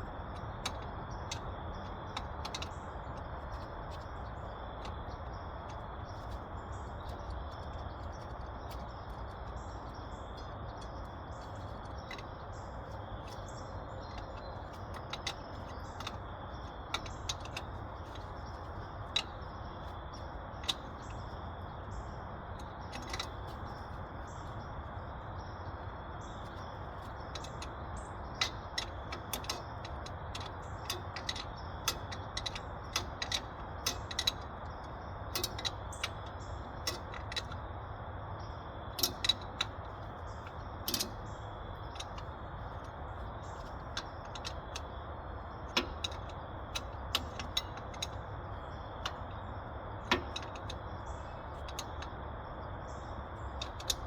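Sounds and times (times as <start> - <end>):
ratchet and wrenches clinking: 26.3 - 37.6, 39.0 - 45.0, 45.7 - 52.1, 53.4 - 54.0.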